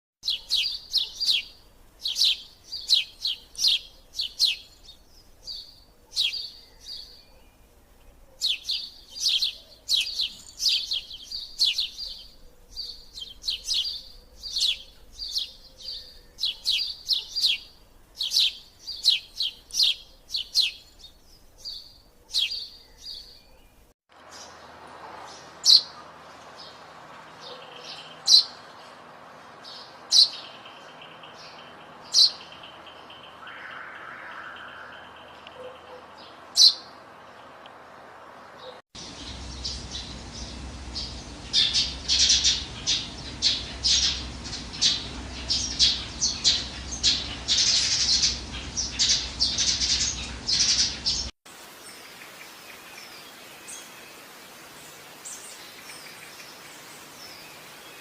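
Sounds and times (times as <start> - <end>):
sparrows chirping: 0.2 - 37.5, 38.4 - 58.0
steady background hiss: 0.3 - 6.7, 23.7 - 58.0.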